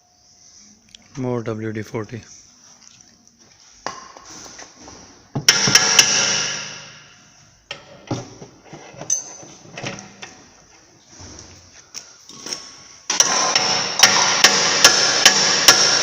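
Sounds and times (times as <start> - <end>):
hammer striking steel: 5.5 - 7.1, 13.1 - 16.0.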